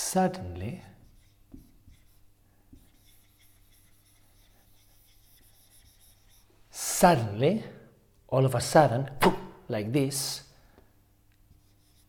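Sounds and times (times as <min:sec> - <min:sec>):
pen scratching on paper: 0:01.0 - 0:06.5, 0:11.5 - 0:12.0.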